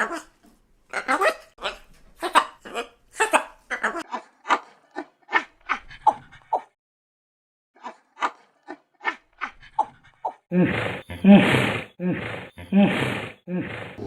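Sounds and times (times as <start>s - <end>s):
animal long call: 10.5s - 14.0s.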